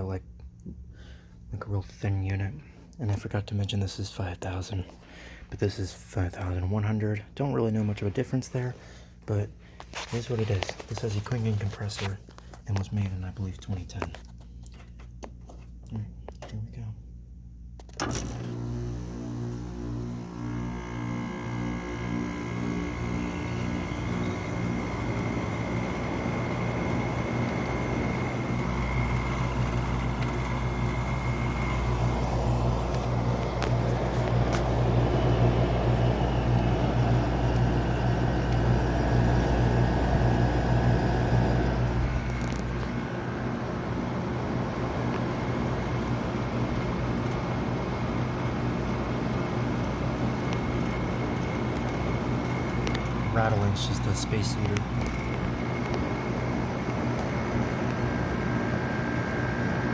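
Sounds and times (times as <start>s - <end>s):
air conditioner humming: 0.0s - 59.9s
deeper compressor hum: 15.9s - 59.9s
space heater rattling: 20.0s - 59.9s.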